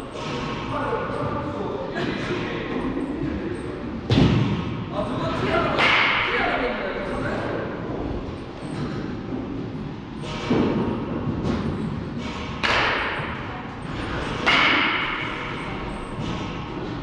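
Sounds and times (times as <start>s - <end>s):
baseball bat hits echoing: 4.1s - 4.8s, 5.8s - 6.5s, 14.3s - 15.2s.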